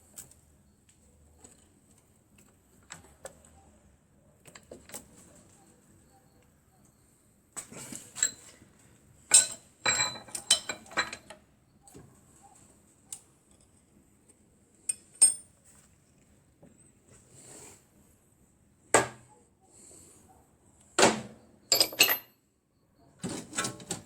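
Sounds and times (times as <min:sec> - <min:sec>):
small metal parts clinking: 0:09.3 - 0:11.4, 0:21.7 - 0:22.4.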